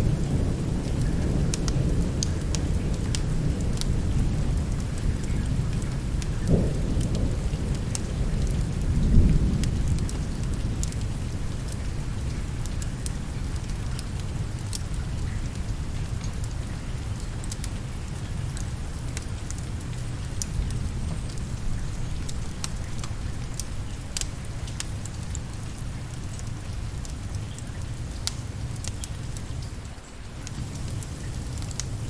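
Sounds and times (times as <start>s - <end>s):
low rolling thunder: 0.0s - 12.6s, 30.4s - 32.0s
steady rain: 0.0s - 32.0s.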